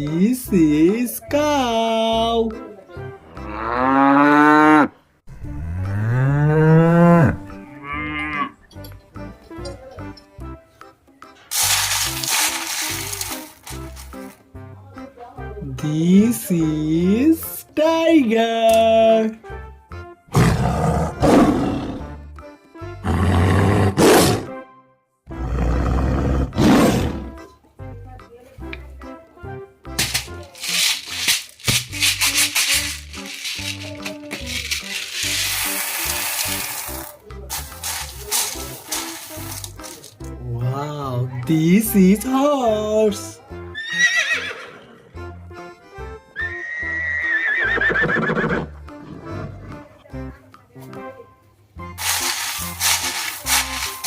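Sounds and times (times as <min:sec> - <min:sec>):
light background music: 0:00.0 - 0:54.0
tiger roaring: 0:20.3 - 0:22.1, 0:23.0 - 0:24.5, 0:25.3 - 0:27.3
horse whinnying: 0:43.7 - 0:45.2, 0:46.4 - 0:49.7.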